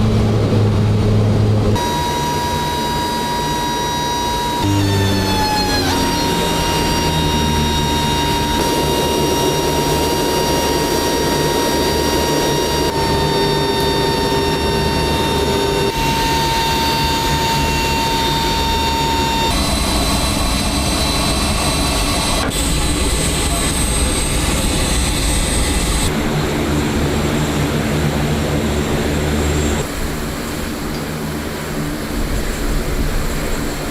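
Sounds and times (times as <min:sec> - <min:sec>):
turboprop engines running: 0:00.0 - 0:33.9.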